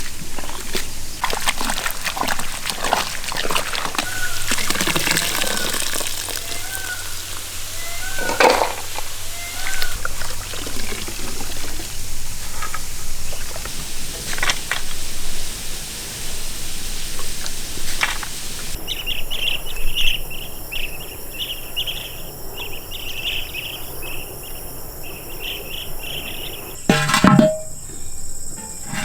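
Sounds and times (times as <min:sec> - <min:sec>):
water splashing and sloshing: 0:00.0 - 0:18.8, 0:26.5 - 0:27.9, 0:28.5 - 0:29.0.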